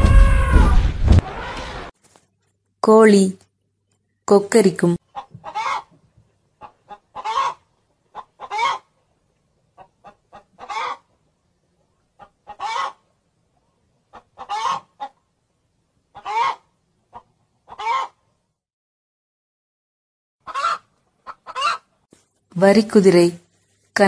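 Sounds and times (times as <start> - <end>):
hen cackling: 5.1 - 5.9, 6.6 - 8.9, 9.8 - 11.1, 12.2 - 13.0, 14.1 - 15.2, 16.1 - 18.2, 20.4 - 21.9.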